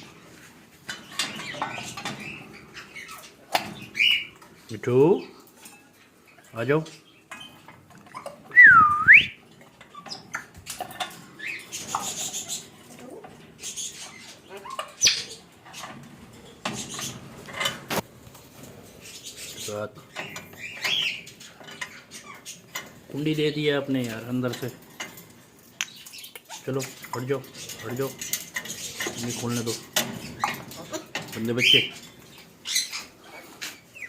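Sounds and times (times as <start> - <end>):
metal cage rattling: 0.8 - 4.6, 9.4 - 34.0
parrot squawking and chirping: 1.0 - 4.4, 6.3 - 15.9, 19.0 - 22.8, 28.5 - 34.0.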